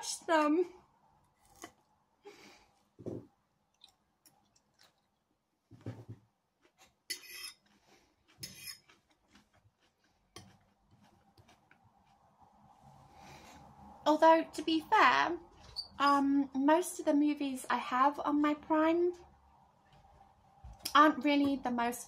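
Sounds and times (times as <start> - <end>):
person chewing salad: 1.3 - 2.0, 3.7 - 5.3, 6.5 - 13.7.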